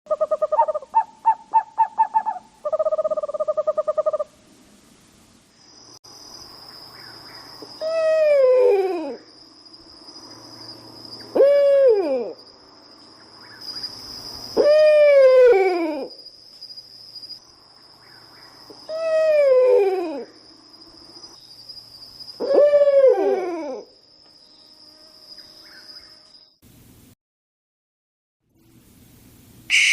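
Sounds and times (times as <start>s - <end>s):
owl trilling and whinny calls: 0.1s - 4.3s, 22.3s - 23.8s, 29.7s - 29.9s.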